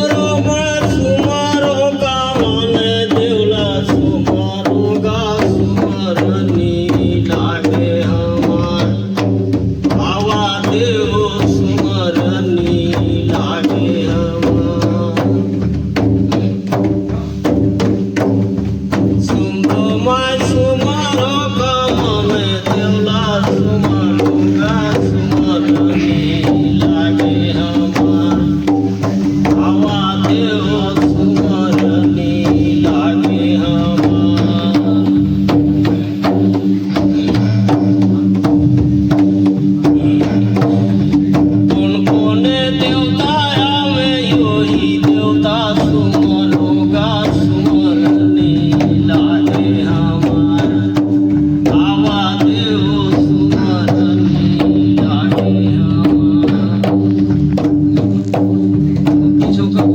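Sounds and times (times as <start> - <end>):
hand drum percussion: 0.0 - 59.9.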